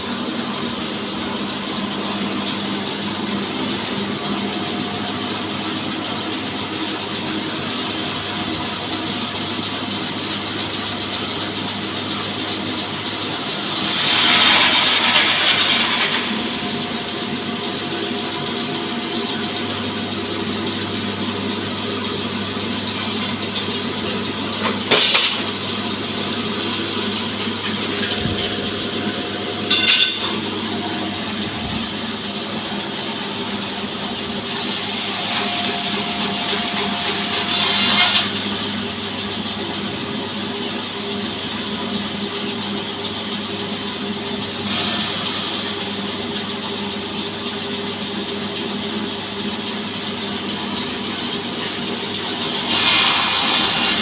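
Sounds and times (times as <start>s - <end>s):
sawmill petrol engine running: 0.0s - 54.0s.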